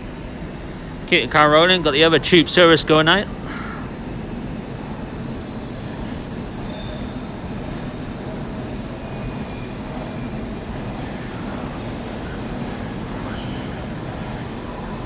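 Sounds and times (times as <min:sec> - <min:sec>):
train wheels rumbling on rails: 0:00.0 - 0:15.0
faint wheel squeals: 0:05.8 - 0:15.0.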